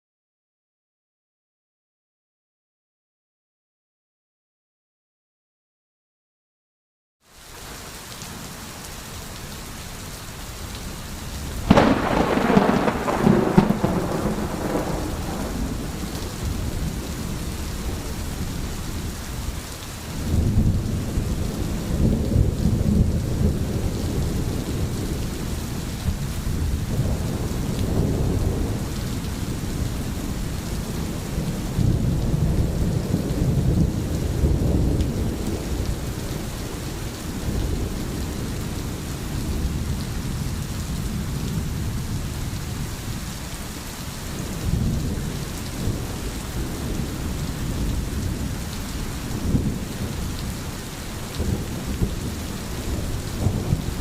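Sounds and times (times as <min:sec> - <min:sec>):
steady rain: 0:07.2 - 0:54.0
sharp thunderclap: 0:11.6 - 0:18.1, 0:51.4 - 0:54.0
low rolling thunder: 0:11.6 - 0:19.5, 0:20.2 - 0:43.2, 0:44.4 - 0:54.0.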